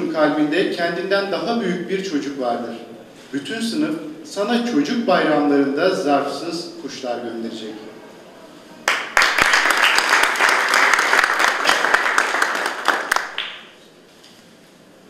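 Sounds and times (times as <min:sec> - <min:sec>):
audience applauding: 0:08.8 - 0:13.8.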